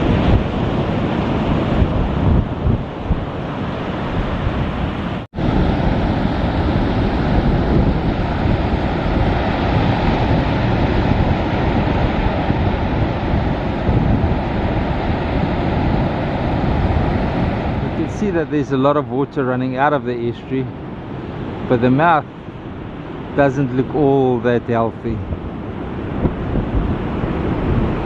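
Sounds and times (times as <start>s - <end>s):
surf washing: 0.0s - 28.0s
wind buffeting microphone: 0.0s - 28.0s.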